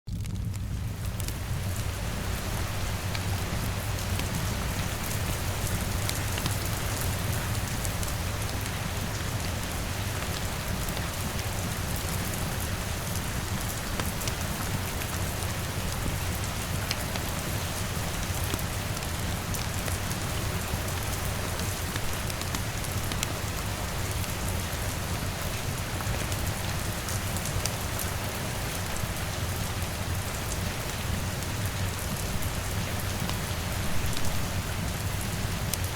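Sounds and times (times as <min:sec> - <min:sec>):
wood fire crackling: 0:00.1 - 0:07.1
rain on a window: 0:00.1 - 0:35.9.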